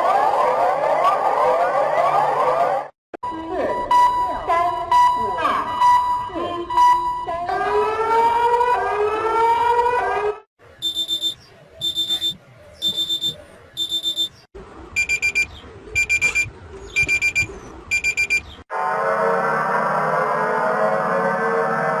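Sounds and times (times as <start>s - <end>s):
lower fuller beep pattern: 3.2s - 7.5s, 10.8s - 14.4s, 15.0s - 18.5s
rapid high-pitched beeps: 10.8s - 14.4s, 15.0s - 18.4s
rising sweeping alert tones: 10.8s - 14.4s.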